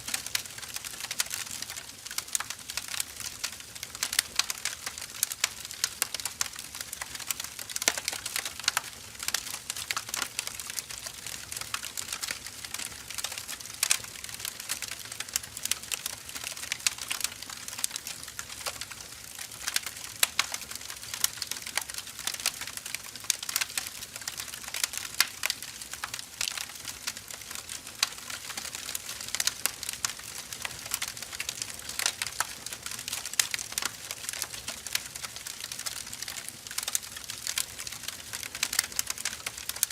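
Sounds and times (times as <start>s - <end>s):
firewood crackling and popping: 0.0s - 39.9s.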